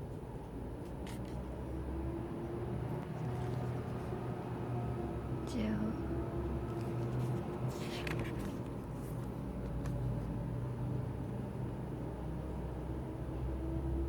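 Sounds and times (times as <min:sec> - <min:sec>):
low background hum: 0:00.0 - 0:14.0
paper pages rustling: 0:00.8 - 0:01.4, 0:03.0 - 0:04.1, 0:06.7 - 0:10.2.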